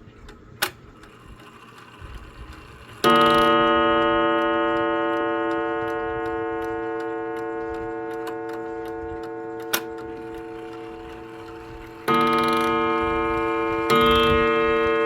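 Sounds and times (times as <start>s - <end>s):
clock ticking: 2.5s - 15.0s
clock gong ringing: 3.0s - 15.0s.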